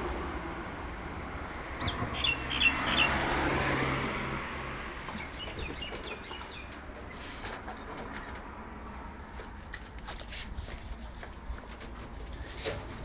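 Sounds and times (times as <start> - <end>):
bird chirping: 1.8 - 3.2, 5.0 - 7.2
light clicks and rustles: 4.9 - 13.0.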